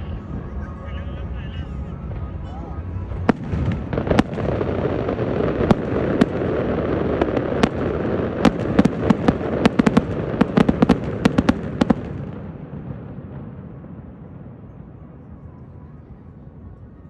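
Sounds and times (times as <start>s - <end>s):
fireworks bursting: 2.0s - 15.2s.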